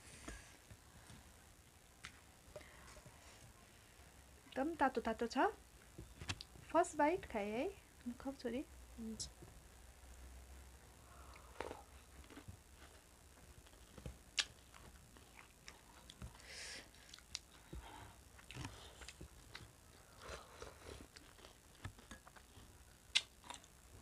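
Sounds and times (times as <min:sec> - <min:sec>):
chewing and biting: 0:11.3 - 0:13.0, 0:16.9 - 0:23.7.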